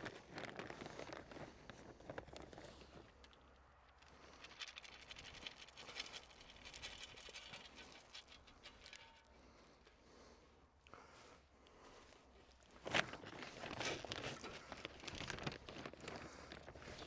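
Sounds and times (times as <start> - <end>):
light pattering: 0.3 - 10.0.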